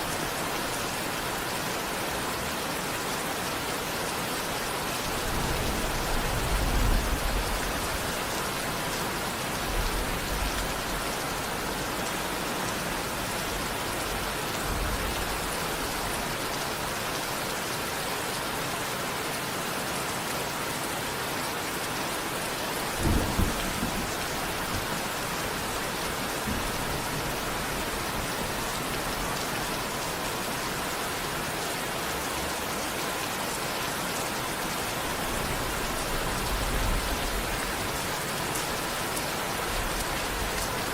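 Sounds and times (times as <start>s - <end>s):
steady rain falling: 0.0s - 40.9s
thunder rumbling: 5.2s - 8.2s, 23.0s - 28.7s.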